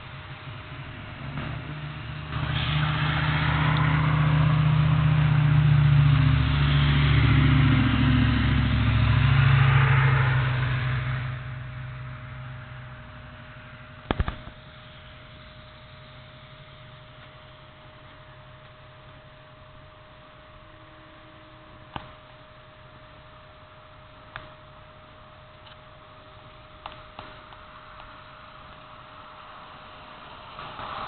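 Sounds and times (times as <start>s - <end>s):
vehicle driving past: 0.0s - 17.0s, 29.2s - 31.0s.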